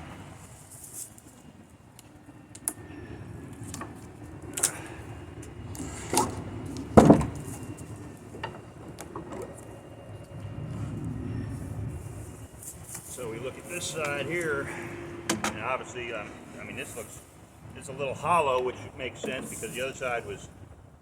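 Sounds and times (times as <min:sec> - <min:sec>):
wooden knocks and bumps: 0:07.0 - 0:07.5.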